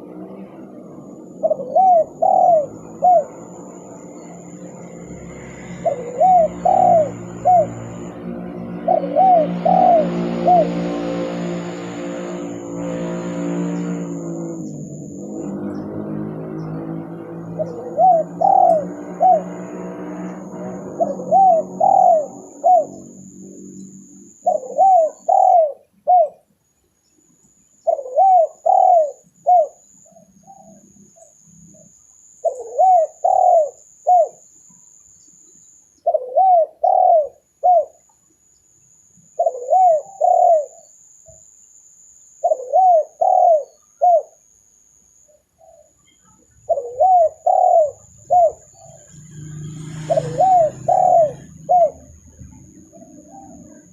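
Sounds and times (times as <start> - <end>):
dove cooing: 0.0 - 3.8, 5.6 - 11.6, 17.5 - 26.4, 27.8 - 29.8, 32.4 - 34.4, 36.0 - 38.0, 39.4 - 40.8, 42.4 - 44.4, 45.6 - 49.2, 50.0 - 53.9
low droning hum: 0.0 - 24.5
faint high steady whine: 0.0 - 53.9.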